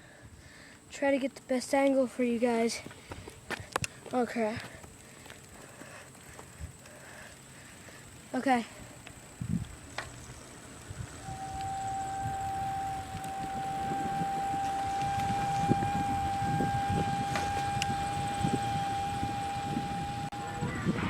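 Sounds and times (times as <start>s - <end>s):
wind rumble on microphone: 9.2s - 21.0s
steady high-pitched tone: 11.1s - 21.0s.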